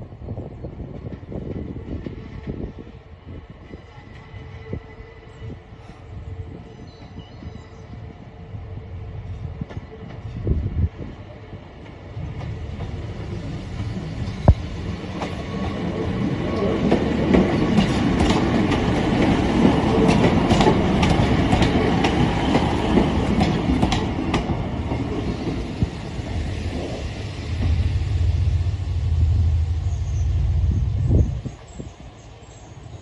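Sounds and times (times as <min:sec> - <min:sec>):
diesel train rumbling past: 0:00.0 - 0:33.0
train wheels clicking over rail joints: 0:11.8 - 0:26.1.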